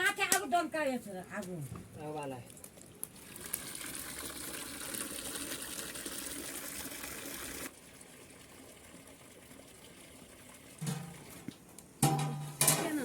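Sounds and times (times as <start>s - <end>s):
water pouring: 2.9s - 11.6s.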